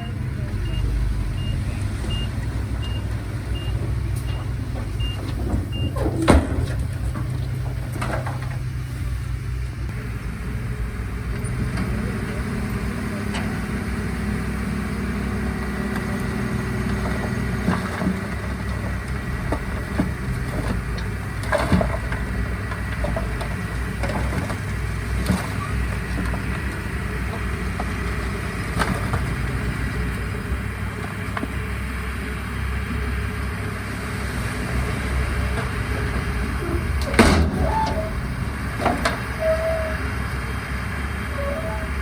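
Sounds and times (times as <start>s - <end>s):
diesel engine running: 0.0s - 42.0s
metal clanks and knocks: 3.8s - 9.2s, 16.8s - 29.8s, 35.4s - 40.0s.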